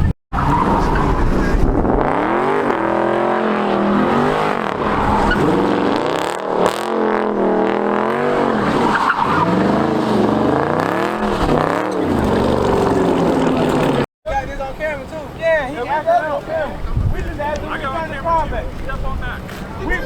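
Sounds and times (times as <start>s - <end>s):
car engine revving: 0.4s - 14.1s.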